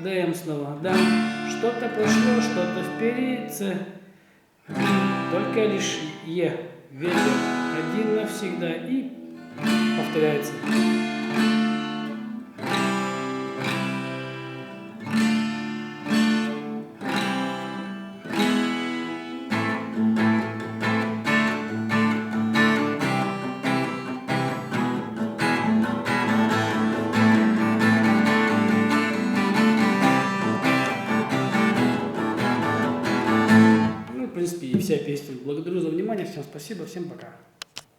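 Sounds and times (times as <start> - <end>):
acoustic guitar strumming chords: 0.8 - 3.6, 4.7 - 6.3, 7.0 - 34.9.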